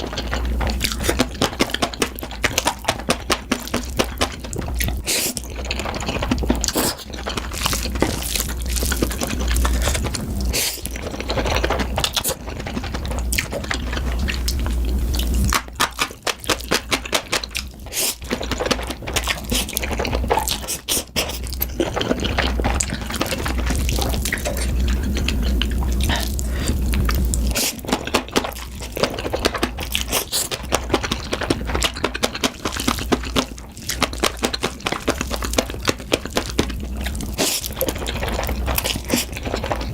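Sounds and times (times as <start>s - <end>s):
person chewing and smacking: 0.0s - 39.9s.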